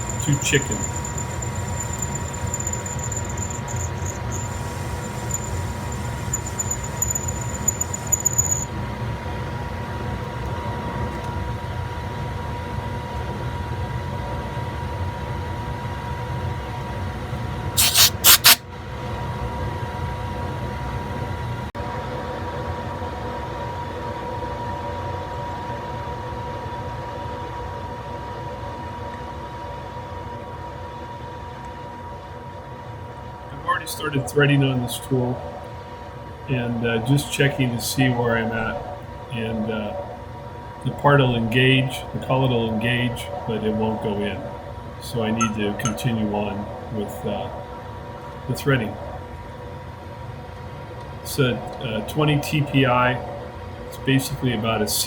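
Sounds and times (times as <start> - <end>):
lathe humming: 0.0 - 8.7
thin high-pitched squeal: 0.0 - 8.7, 17.8 - 18.6.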